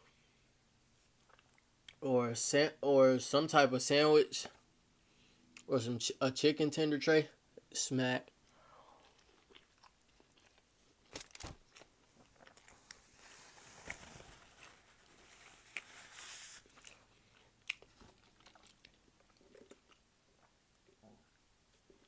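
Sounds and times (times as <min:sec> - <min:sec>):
chewing and crunching food: 0:01.0 - 0:02.0, 0:08.4 - 0:13.9, 0:14.5 - 0:22.0.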